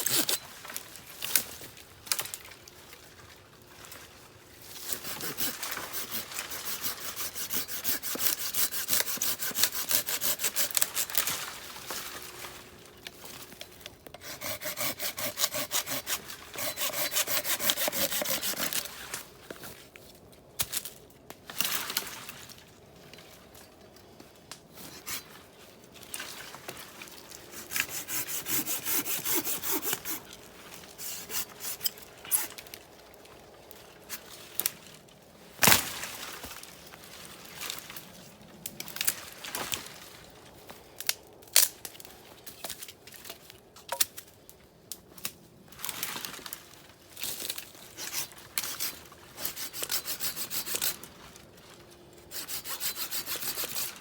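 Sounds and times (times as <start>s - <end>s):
blade rasping wood: 0.0s - 0.4s, 4.8s - 11.3s, 14.1s - 18.9s, 27.5s - 30.3s, 31.0s - 32.6s, 48.0s - 51.0s, 52.3s - 54.0s.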